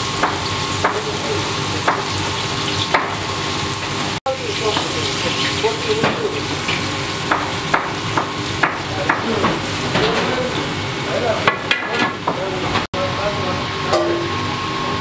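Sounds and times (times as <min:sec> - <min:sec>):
food sizzling in hot oil: 0:00.0 - 0:11.5
utensils knocking against pan: 0:13.9 - 0:14.4.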